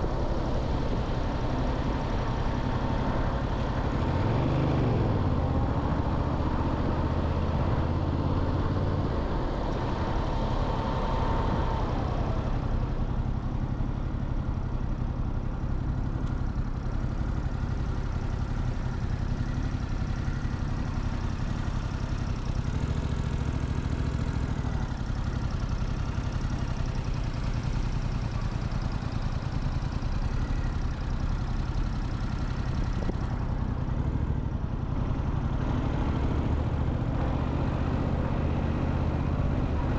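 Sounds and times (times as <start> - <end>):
motorcycle engine idling: 11.5 - 39.9.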